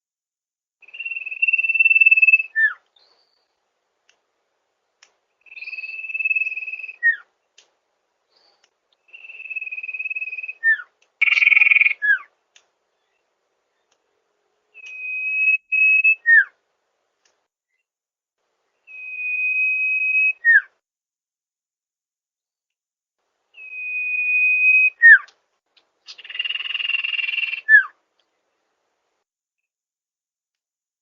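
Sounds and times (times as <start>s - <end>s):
bird whistling: 0.8s - 3.4s, 5.4s - 7.3s, 9.1s - 12.3s, 14.8s - 16.5s, 18.8s - 20.7s, 23.6s - 25.3s, 26.1s - 27.9s.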